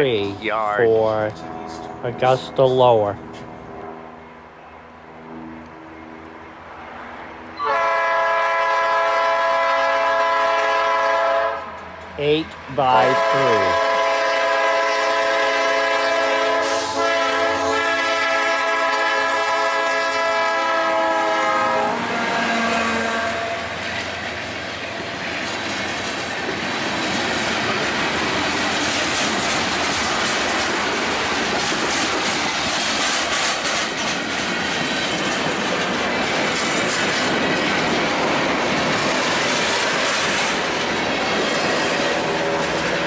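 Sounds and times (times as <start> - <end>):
train horn: 7.6 - 11.7, 13.1 - 23.8, 42.2 - 43.0
train wheels clacking over rail joints: 23.7 - 43.0.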